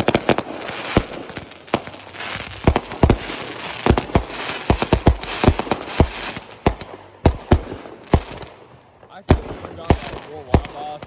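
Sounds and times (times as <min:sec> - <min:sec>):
fireworks whistles falling: 0:00.0 - 0:08.5
fireworks bangs and cracks: 0:00.0 - 0:11.0
fireworks crackle: 0:00.0 - 0:11.0.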